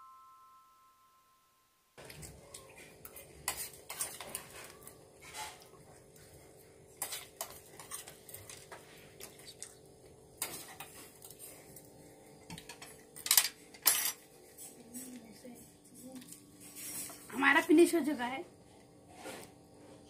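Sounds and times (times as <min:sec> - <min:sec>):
spoons clinking on steel bowls: 0:03.0 - 0:04.7, 0:12.5 - 0:14.2.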